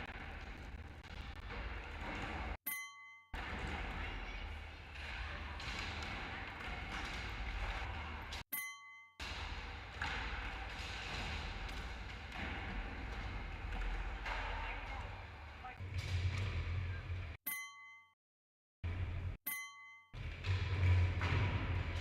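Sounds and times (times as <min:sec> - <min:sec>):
skateboard thudding on landings: 0:09.2 - 0:16.6.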